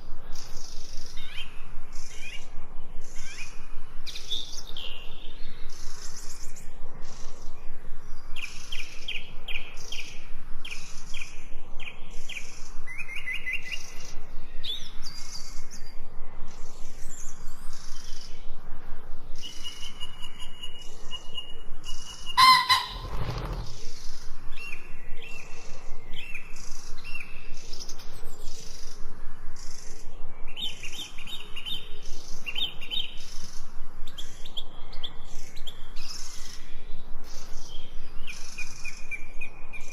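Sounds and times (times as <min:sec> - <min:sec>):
songbirds chirping and trilling: 0:00.0 - 0:39.9
held whistle: 0:22.4 - 0:23.6.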